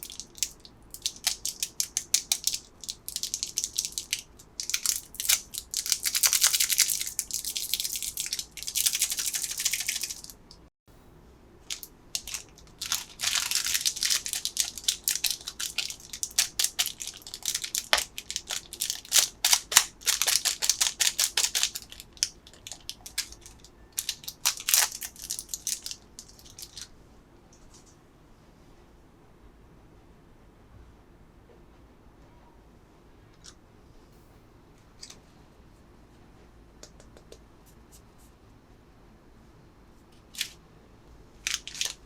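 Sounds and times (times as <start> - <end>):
plastic packaging crinkling: 0.0 - 10.4, 11.7 - 26.9, 41.4 - 42.0.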